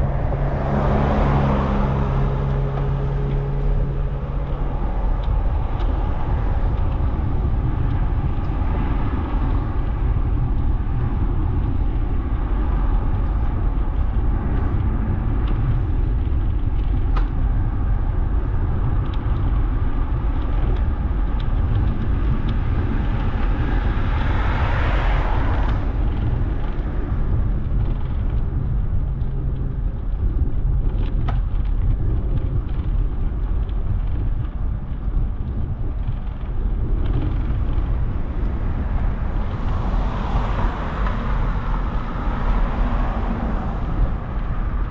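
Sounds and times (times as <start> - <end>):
vehicle rushing past: 0.0 - 5.7, 23.0 - 27.2, 37.4 - 44.9
road traffic noise: 0.0 - 44.9
wind rumbling on microphone: 0.0 - 44.9.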